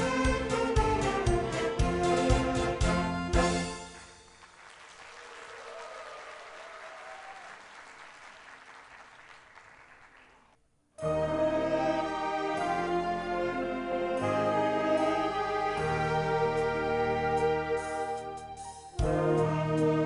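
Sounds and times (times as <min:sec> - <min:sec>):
loud instrumental music: 0:00.0 - 0:04.2
audience applauding: 0:04.2 - 0:10.6.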